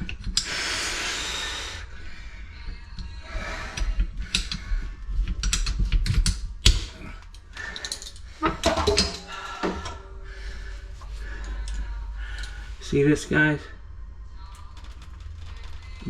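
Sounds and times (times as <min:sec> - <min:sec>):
tools and metal parts rattling: 0:05.2 - 0:10.1.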